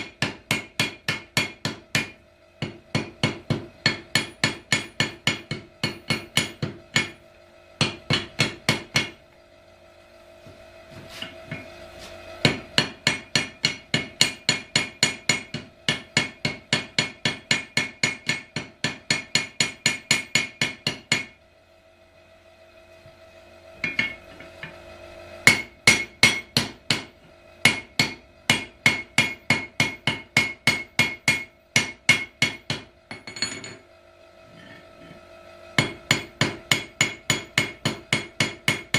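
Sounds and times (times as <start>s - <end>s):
hammer striking steel on anvil: 0.0s - 7.2s, 7.8s - 9.2s, 12.4s - 21.4s, 23.8s - 24.8s, 25.4s - 33.8s, 35.8s - 38.9s.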